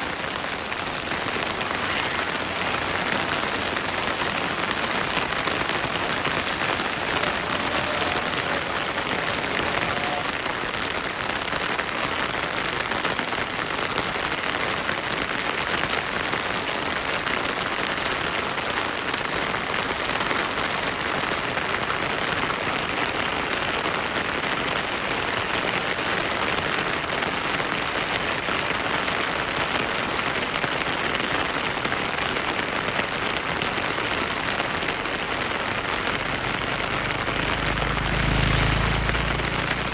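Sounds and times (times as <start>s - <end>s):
heavy rain hissing: 0.0s - 10.6s, 25.7s - 39.9s.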